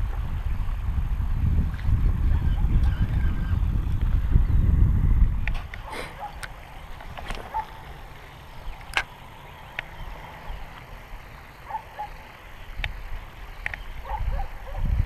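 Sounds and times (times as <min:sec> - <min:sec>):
sharp clicks: 0:08.7 - 0:10.0.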